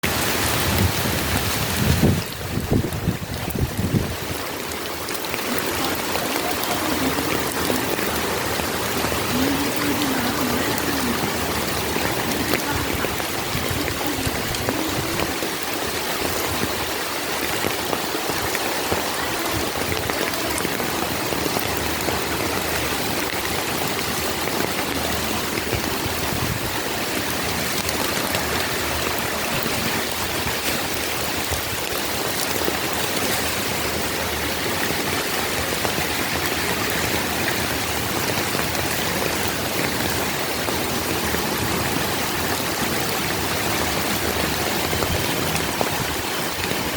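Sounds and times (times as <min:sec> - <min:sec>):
heavy rain pouring: 0:00.0 - 0:46.9.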